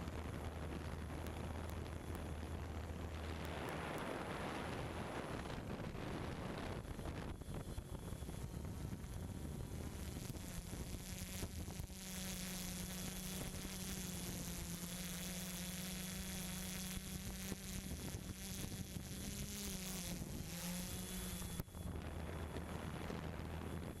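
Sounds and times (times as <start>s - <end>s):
drone propellers buzzing: 0.0s - 24.0s.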